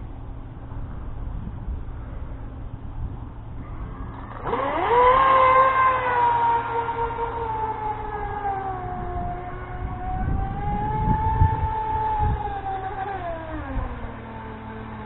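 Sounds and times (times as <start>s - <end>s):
low rumble: 0.0s - 14.8s
electric motor whining: 4.0s - 15.0s.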